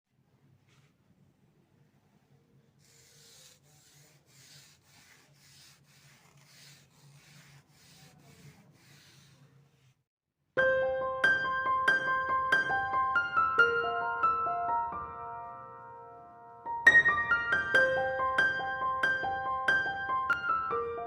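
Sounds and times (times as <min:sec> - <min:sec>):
paintbrush brushing on canvas: 0:02.8 - 0:10.0.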